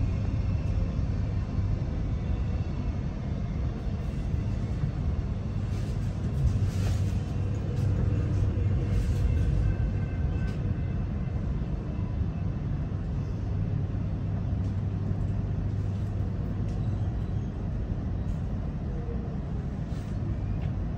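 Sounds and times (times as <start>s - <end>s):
faint train whine: 0.0s - 20.9s
train wheels rumbling on track: 0.0s - 20.9s.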